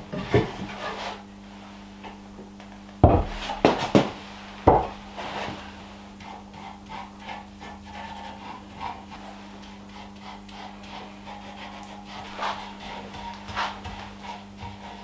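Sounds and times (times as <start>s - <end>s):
steady low hum: 0.0s - 15.0s
rhythmic rubbing strokes on wood: 3.0s - 15.0s.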